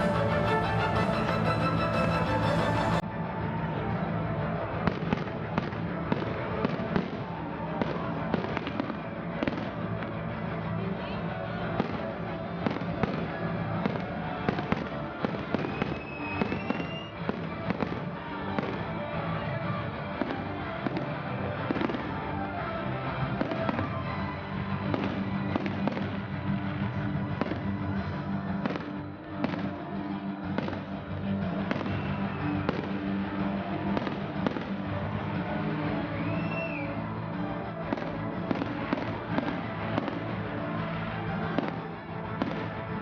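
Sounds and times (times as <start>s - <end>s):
music playing: 0.0s - 43.0s
fireworks bangs: 11.7s - 18.9s, 23.3s - 29.8s, 30.4s - 34.9s, 37.9s - 43.0s.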